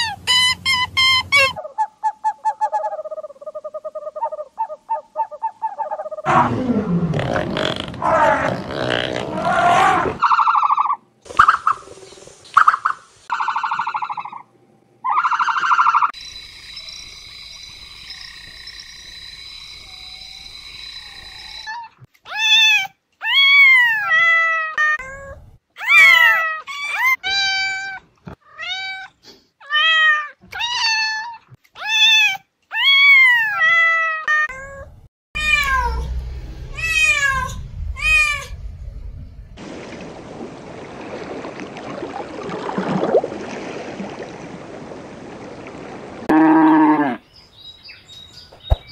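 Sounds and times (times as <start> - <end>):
cat meowing: 22.3 - 36.1, 36.7 - 38.5.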